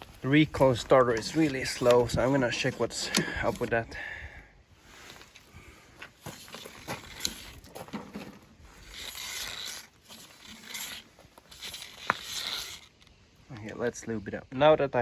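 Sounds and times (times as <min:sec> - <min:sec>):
tools scraping plastic: 0:00.5 - 0:03.8, 0:06.1 - 0:13.1.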